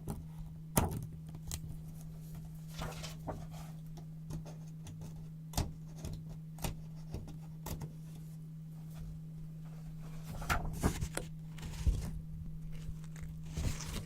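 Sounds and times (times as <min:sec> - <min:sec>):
paper rustling: 0:01.6 - 0:03.8, 0:09.8 - 0:14.0.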